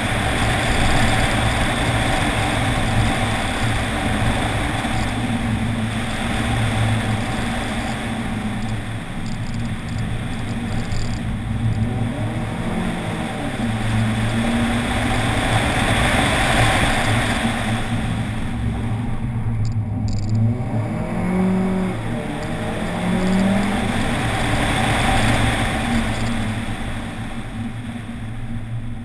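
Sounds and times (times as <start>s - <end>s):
car engine revving: 0.0s - 28.8s.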